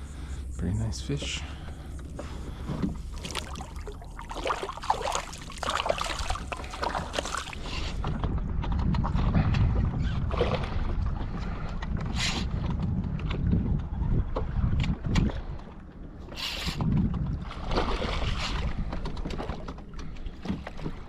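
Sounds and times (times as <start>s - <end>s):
water sounds: 0.0s - 12.1s
wind rumbling on microphone: 0.0s - 21.0s
knocks and clatter on kayak: 2.1s - 15.7s, 16.8s - 21.0s.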